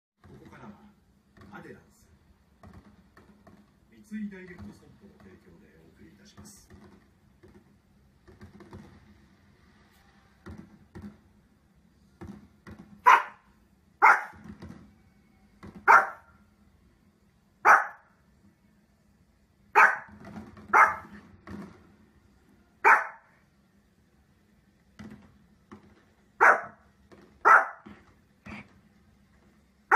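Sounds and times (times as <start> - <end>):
small dog barking: 13.0 - 14.4, 15.8 - 16.3, 17.6 - 18.1, 19.7 - 21.2, 22.8 - 23.4, 26.4 - 26.8, 27.4 - 27.9.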